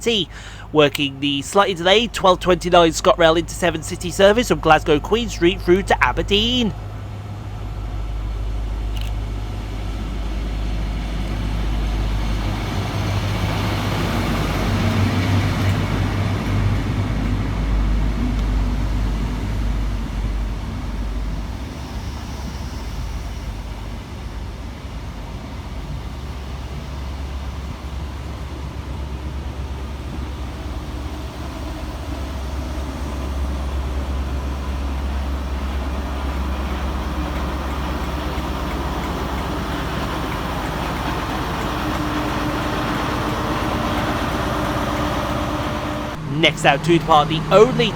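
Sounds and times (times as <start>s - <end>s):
train wheel noise: 0.0s - 46.3s
diesel train engine drone: 0.0s - 47.9s.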